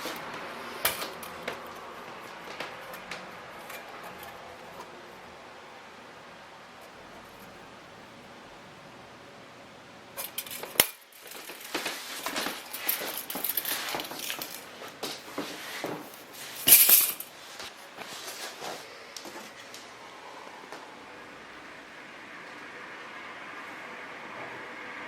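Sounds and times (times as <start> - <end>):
faint hiss: 0.0 - 25.0
hard objects clattering: 10.2 - 19.8.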